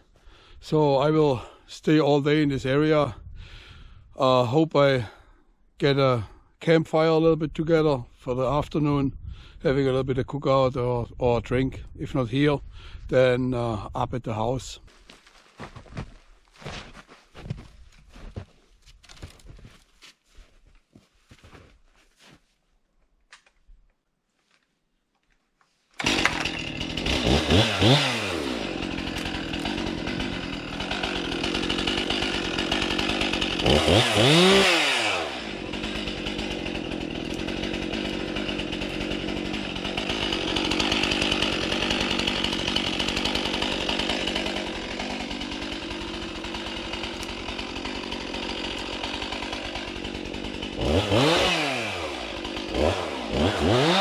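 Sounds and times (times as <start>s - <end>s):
chainsaw cutting firewood: 26.0s - 54.0s.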